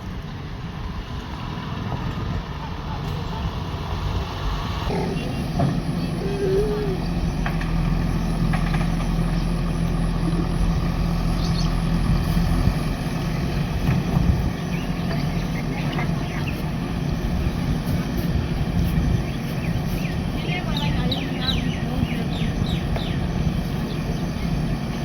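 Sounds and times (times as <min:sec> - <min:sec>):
heavy diesel engine humming: 0:00.0 - 0:25.0.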